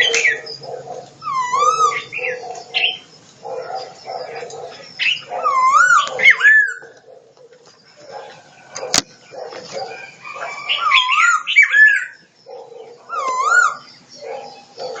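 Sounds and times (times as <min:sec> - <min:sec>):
animal whistled calls: 0:00.0 - 0:07.0, 0:12.9 - 0:15.0.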